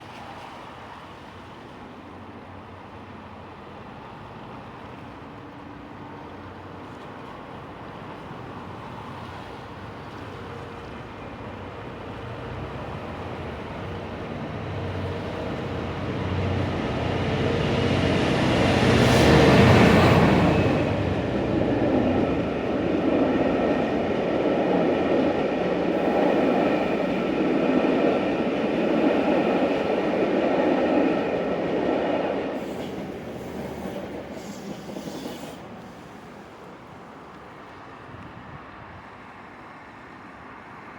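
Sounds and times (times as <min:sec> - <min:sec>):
diesel locomotive passing: 0:00.4 - 0:40.9.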